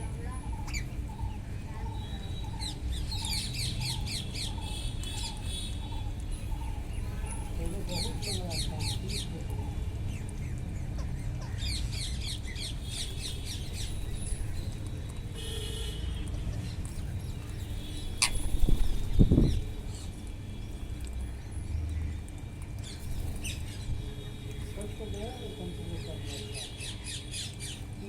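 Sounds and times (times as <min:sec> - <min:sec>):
parrots chirping: 0:00.4 - 0:09.3, 0:16.5 - 0:20.1
parrot squawk: 0:18.2 - 0:18.5.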